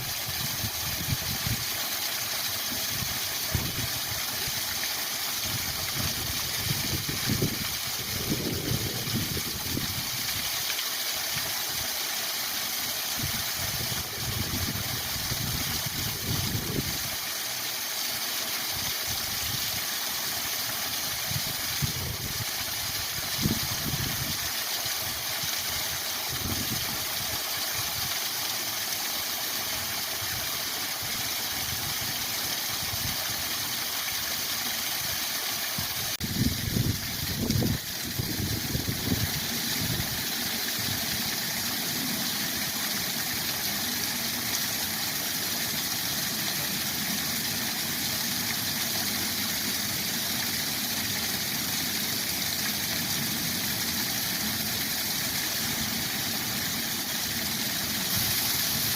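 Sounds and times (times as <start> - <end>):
waterfall rushing: 30.9 - 58.9.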